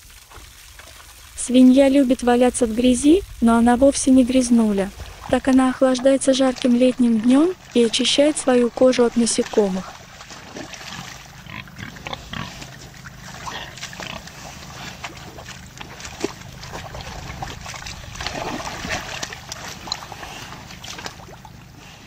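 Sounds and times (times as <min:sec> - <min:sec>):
pigs grunting: 0:09.4 - 0:22.0.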